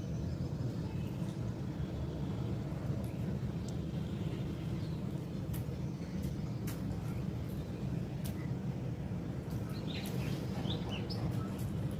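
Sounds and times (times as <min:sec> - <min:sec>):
low outdoor rumble: 0:00.0 - 0:11.9
bird chirping: 0:09.6 - 0:11.8.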